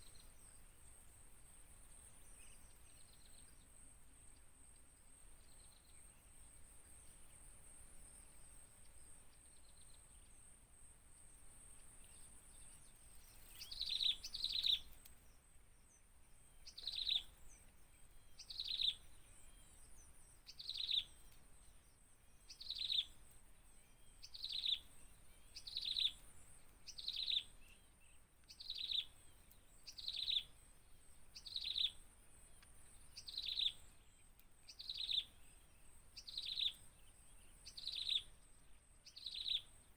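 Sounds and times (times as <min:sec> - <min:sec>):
faint high-pitched whine: 0:00.0 - 0:39.9
bird chirping: 0:12.0 - 0:30.6, 0:31.3 - 0:38.4, 0:39.0 - 0:39.9.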